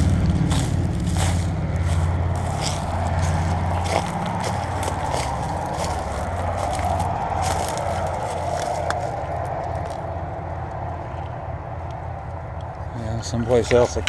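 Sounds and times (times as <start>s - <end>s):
crunching footsteps: 0.0s - 10.1s
road traffic noise: 0.0s - 14.0s.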